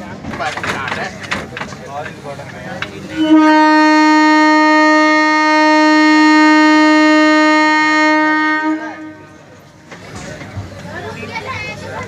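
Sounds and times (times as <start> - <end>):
train horn blast: 3.1 - 9.5.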